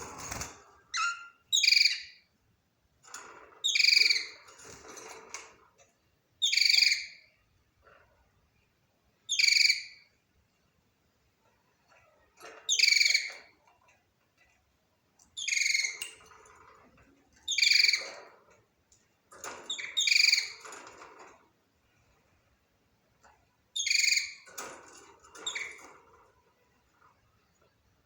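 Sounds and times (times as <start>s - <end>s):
budgerigar chirping: 1.0s - 2.2s.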